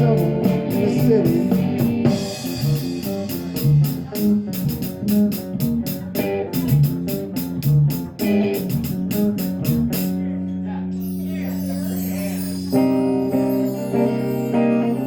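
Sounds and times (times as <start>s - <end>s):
drums keeping a steady beat: 0.0s - 10.3s
electric guitar: 0.0s - 10.8s, 12.0s - 15.0s
bass guitar: 0.0s - 15.0s.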